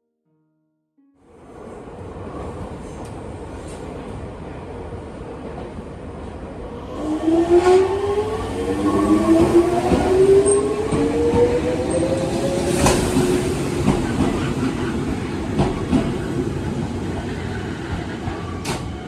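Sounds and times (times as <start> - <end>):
electric train running: 6.6 - 19.0.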